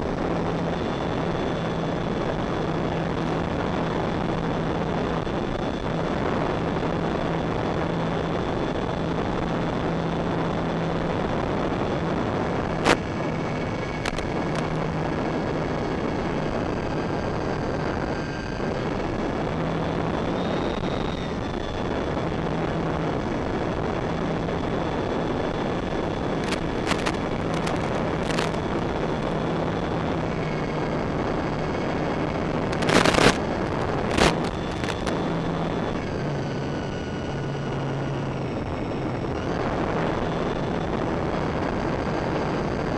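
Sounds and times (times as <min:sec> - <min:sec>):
wind noise: 0:00.0 - 0:42.9
model plane motors whining: 0:11.9 - 0:42.9
sharp cracks: 0:26.4 - 0:29.3.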